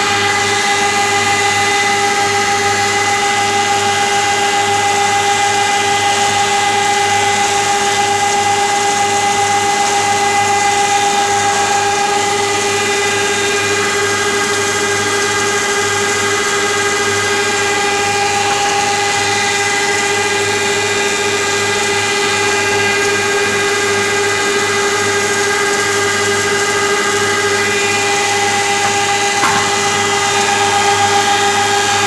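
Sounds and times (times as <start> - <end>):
wood moulder machine running: 26.1 - 32.0
steady machine whine: 26.7 - 32.0.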